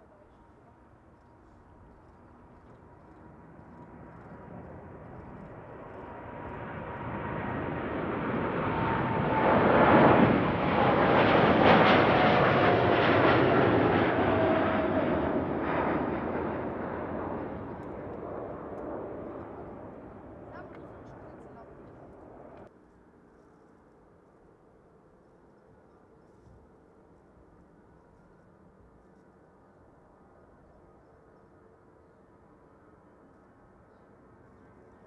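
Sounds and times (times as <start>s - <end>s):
jet engine whine: 0.2s - 22.7s
jet airliner passing: 2.3s - 22.7s.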